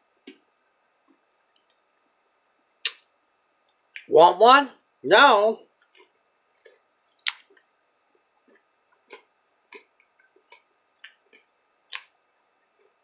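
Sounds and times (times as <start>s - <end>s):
person chewing crunchy chocolate: 5.8s - 7.8s, 8.4s - 12.1s.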